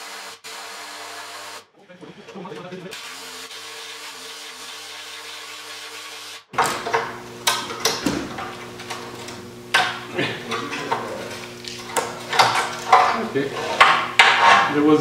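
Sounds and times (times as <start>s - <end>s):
steady hum: 6.6s - 15.0s.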